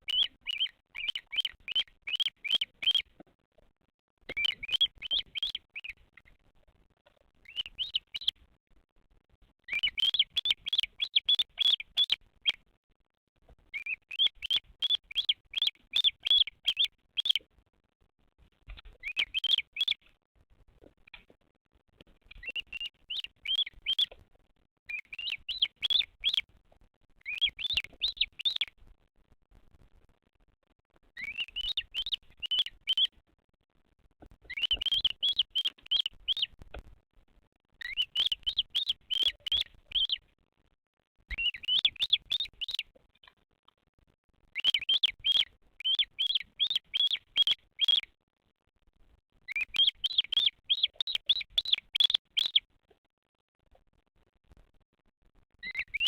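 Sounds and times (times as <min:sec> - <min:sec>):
bird chick chirping: 0:00.0 - 0:03.2, 0:04.3 - 0:06.4, 0:07.4 - 0:08.4, 0:09.6 - 0:12.6, 0:13.7 - 0:17.4, 0:18.6 - 0:20.1, 0:22.2 - 0:24.2, 0:24.9 - 0:26.5, 0:27.2 - 0:28.7, 0:31.2 - 0:33.2, 0:34.2 - 0:36.6, 0:37.8 - 0:40.2, 0:41.3 - 0:43.0, 0:44.5 - 0:48.1, 0:49.5 - 0:52.6, 0:55.6 - 0:56.0.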